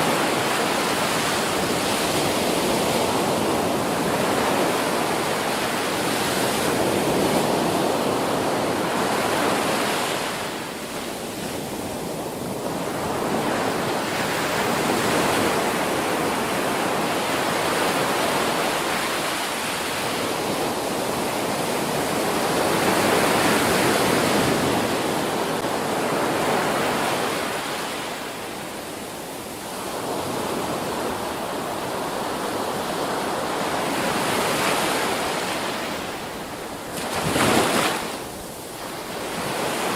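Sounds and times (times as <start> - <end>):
waves breaking: 32.1 - 39.9.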